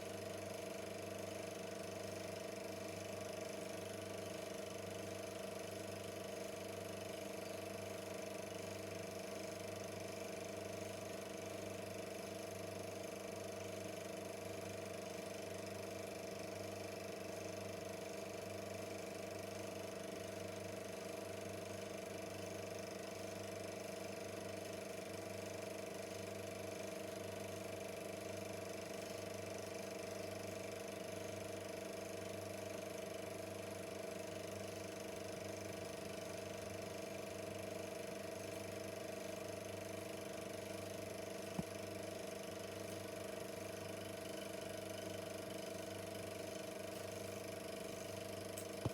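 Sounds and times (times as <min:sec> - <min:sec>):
film projector whirring: 0:00.0 - 0:48.9.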